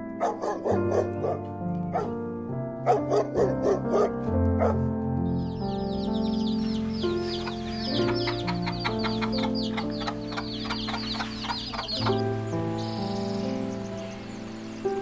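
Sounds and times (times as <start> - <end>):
soft background music: 0.0 - 15.0
chickens peeping and clucking: 5.5 - 14.4.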